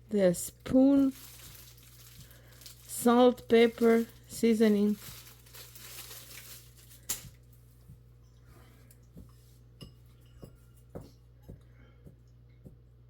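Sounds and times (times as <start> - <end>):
soft rustling: 0.8 - 9.7.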